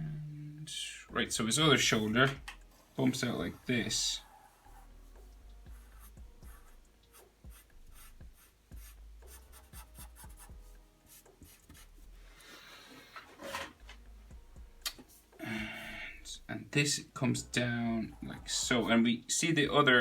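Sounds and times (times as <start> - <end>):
pencil scratching on paper: 3.0 - 12.1.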